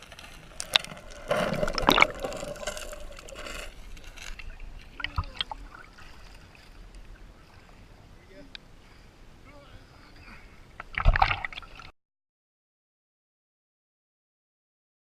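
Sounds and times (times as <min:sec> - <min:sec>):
water splashing around canoe: 0:00.0 - 0:08.0.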